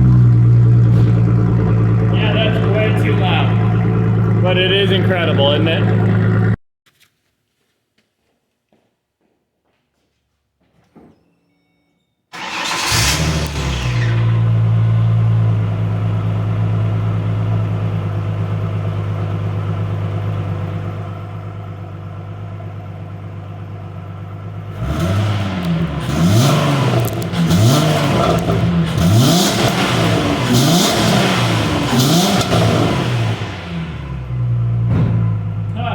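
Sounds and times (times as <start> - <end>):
car engine starting and idling: 0.0 - 6.6, 12.3 - 35.9
engine revving: 0.0 - 6.6, 12.4 - 18.4, 24.6 - 35.9.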